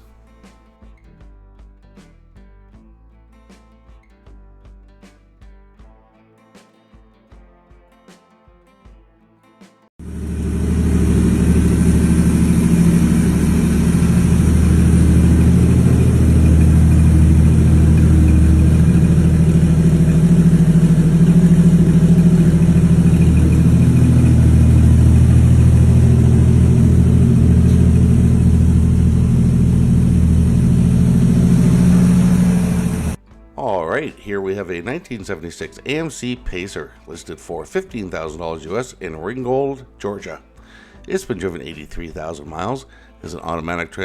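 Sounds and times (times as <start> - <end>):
car engine running: 10.0 - 33.2.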